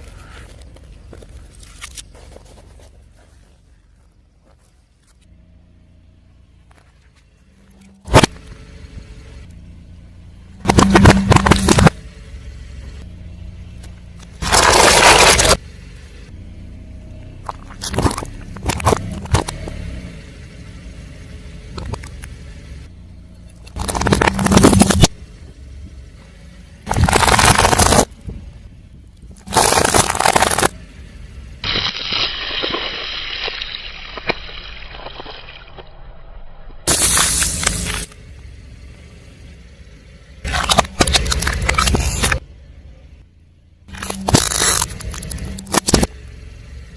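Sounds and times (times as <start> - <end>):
low hum of car engine: 0.0 - 46.9
car tyre crushing objects: 6.6 - 9.4, 10.5 - 13.0, 13.8 - 15.6, 17.2 - 20.0, 20.6 - 36.0, 36.8 - 38.6, 40.3 - 42.4, 43.8 - 46.2
tyre crushing objects: 10.6 - 12.0, 14.4 - 15.6, 23.8 - 25.2, 26.9 - 28.1, 29.4 - 30.8, 43.9 - 46.1.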